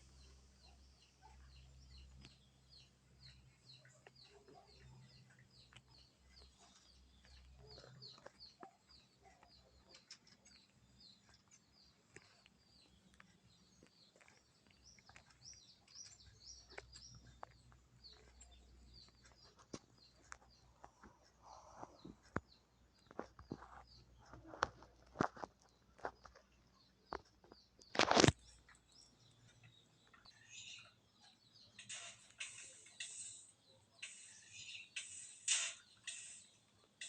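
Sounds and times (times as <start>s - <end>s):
bird chirping: 0.0s - 37.0s
small clicks: 27.1s - 28.8s, 31.8s - 37.0s.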